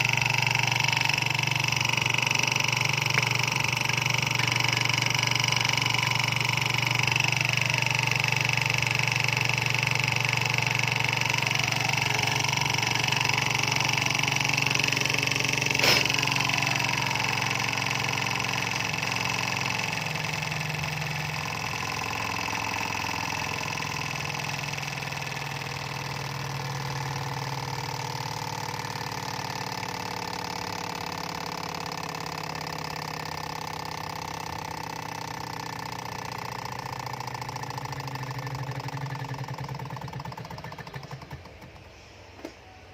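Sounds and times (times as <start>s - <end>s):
engine mechanical whirr: 0.0s - 42.9s
sharp click: 14.8s - 16.4s.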